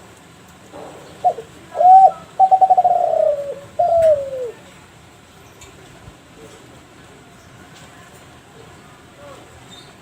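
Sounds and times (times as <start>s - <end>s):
dove cooing: 1.1s - 4.6s.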